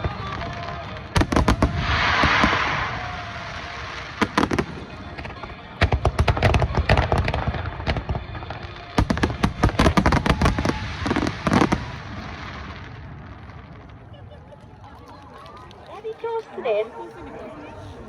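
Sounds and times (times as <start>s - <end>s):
fireworks bursting and crackling: 0.0s - 14.7s.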